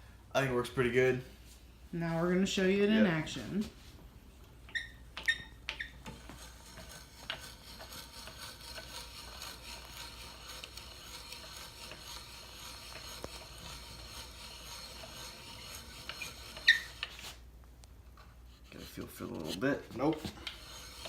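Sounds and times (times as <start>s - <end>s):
auger bit scraping wood: 4.7s - 17.5s, 18.4s - 21.0s.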